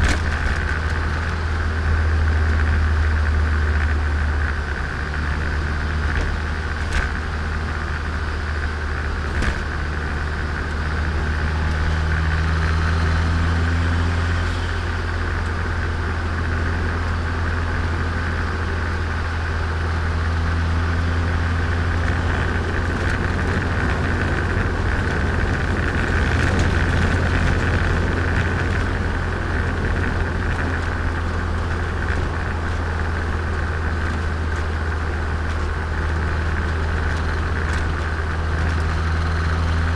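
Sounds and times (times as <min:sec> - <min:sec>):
car engine drone: 0:00.0 - 0:39.9
road noise: 0:00.0 - 0:39.9.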